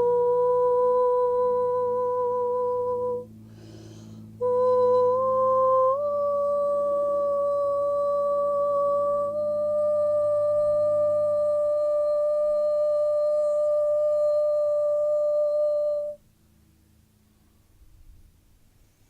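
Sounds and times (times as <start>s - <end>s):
woman humming a steady tone: 0.0s - 16.4s
woman breathing: 3.4s - 4.4s.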